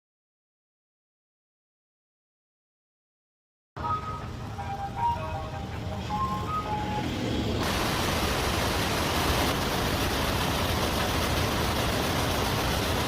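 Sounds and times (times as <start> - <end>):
short musical tone: 3.8 - 7.4
factory machinery clatter: 3.8 - 13.0.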